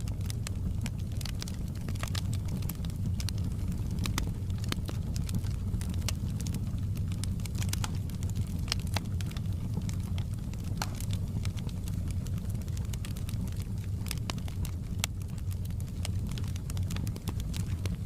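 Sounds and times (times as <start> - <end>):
fire low rumble: 0.0 - 18.0
wood crackling and popping: 0.0 - 18.0.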